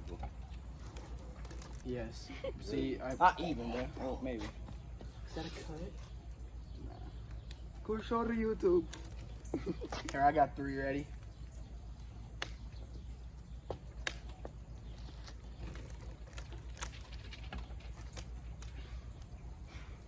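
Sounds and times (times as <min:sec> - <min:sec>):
rubber bands snapping: 0:12.3 - 0:12.7.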